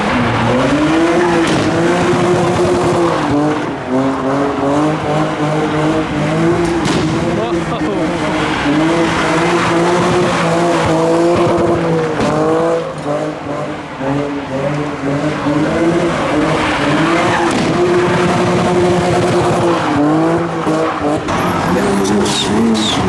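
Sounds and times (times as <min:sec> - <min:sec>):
car engine at high revs: 0:00.0 - 0:23.0
tyres screeching: 0:15.9 - 0:23.0.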